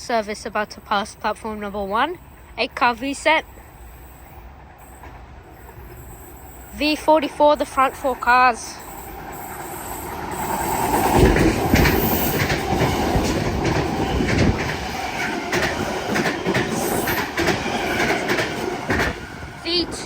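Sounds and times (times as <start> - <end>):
train passing with loud rumble: 0.0 - 20.0
wheels clacking over rail joints: 4.5 - 20.0.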